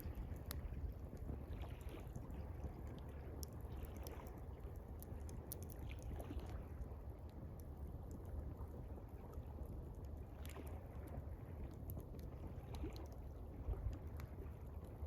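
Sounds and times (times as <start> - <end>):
campfire crackling: 0.0 - 15.0
water lapping: 0.0 - 15.0.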